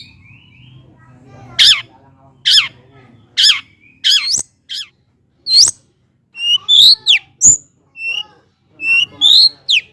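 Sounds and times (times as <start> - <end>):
shrike singing sharp calls: 1.5 - 4.9, 5.5 - 5.8, 6.4 - 9.9.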